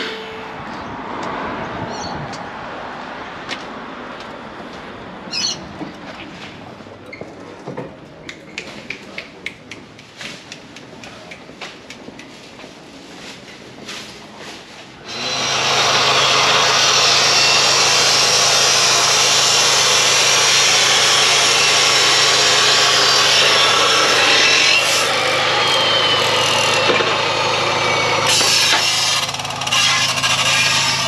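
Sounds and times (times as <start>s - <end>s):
power tool cutting steel tubing: 15.0s - 31.0s.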